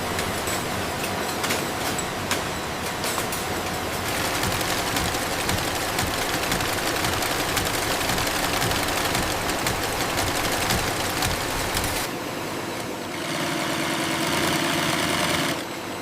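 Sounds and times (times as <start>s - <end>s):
industrial machinery clattering: 0.0s - 12.1s.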